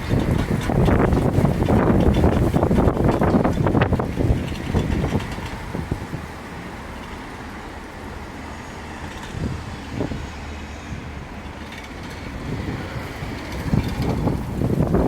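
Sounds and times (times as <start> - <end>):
wind buffeting microphone: 0.0 - 15.0
steady low rumble: 9.1 - 15.0.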